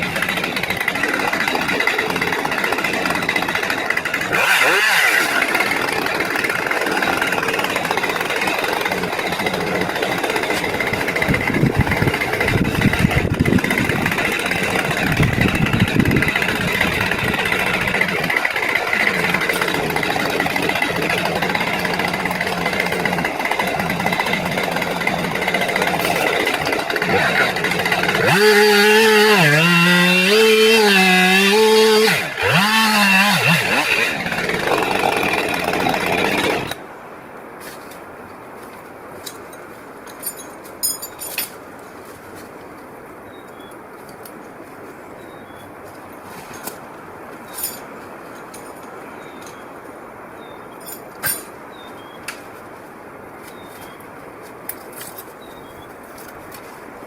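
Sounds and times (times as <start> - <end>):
tractor engine running: 0.0 - 36.8.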